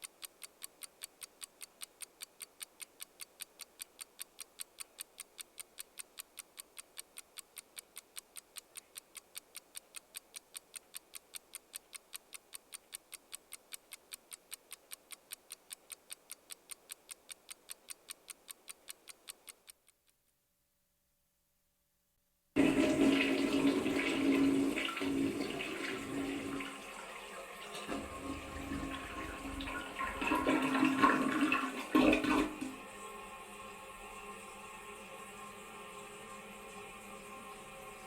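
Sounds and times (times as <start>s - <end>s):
clock ticking fast: 0.0s - 20.2s.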